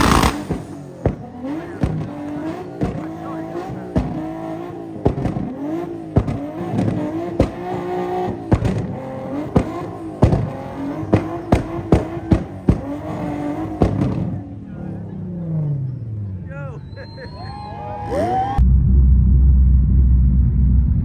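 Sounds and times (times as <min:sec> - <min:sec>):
sharp bangs: 0:00.0 - 0:14.4
car engine revving hard: 0:00.0 - 0:16.0
tyre squeal: 0:16.7 - 0:18.6.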